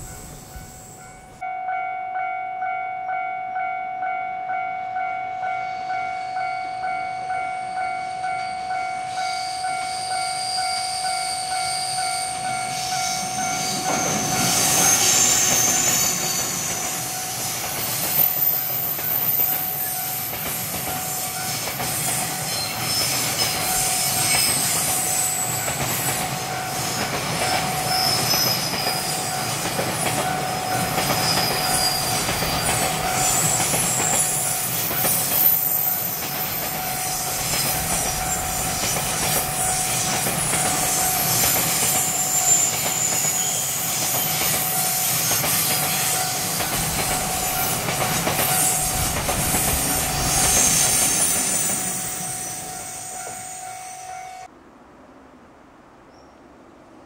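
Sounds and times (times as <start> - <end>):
level crossing bell ringing: 0.0 - 14.7
train passing: 0.0 - 57.0
wheel squeal: 9.3 - 26.2, 26.8 - 54.5
wheels clacking over rail joints: 13.4 - 53.5.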